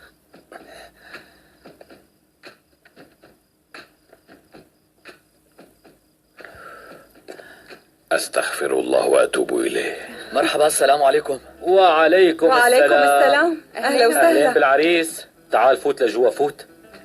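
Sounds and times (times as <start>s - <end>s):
faint irregular taps and clicks: 0.3s - 7.9s.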